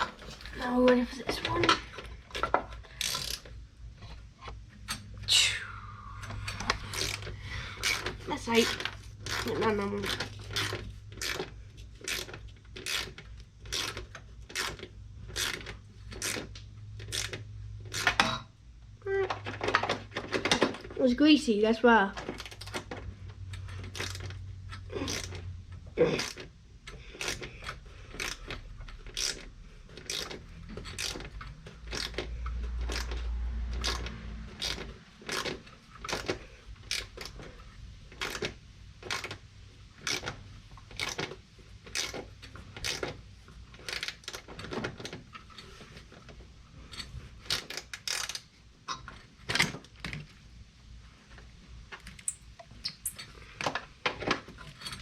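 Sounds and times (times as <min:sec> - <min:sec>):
socket ratchet clicking: 0:26.2 - 0:37.4.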